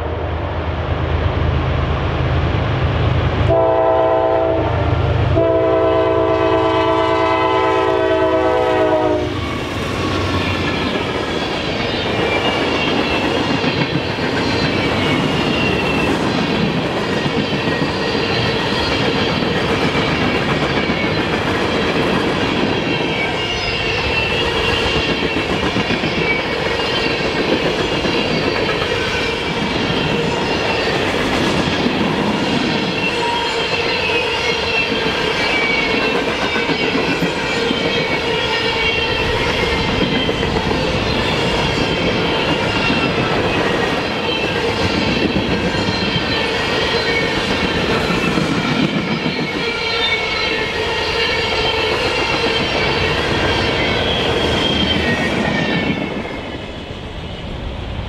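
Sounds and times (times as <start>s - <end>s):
train cars rumbling and clacking: 0.0s - 58.0s
train air horn: 3.4s - 9.5s.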